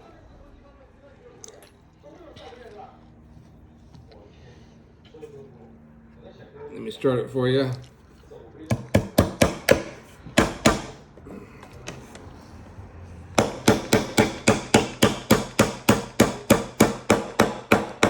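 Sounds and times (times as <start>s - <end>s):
hammer driving nail into wood: 8.7s - 11.0s, 13.4s - 18.0s.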